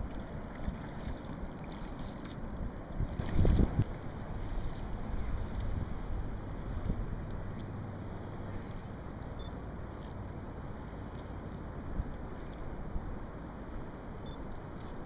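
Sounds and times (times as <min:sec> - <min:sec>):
wind and water rushing: 0:00.0 - 0:15.0.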